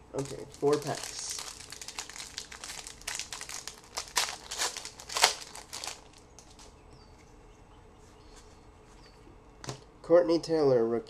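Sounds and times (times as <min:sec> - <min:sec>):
wrapper crinkling: 0:00.1 - 0:06.7.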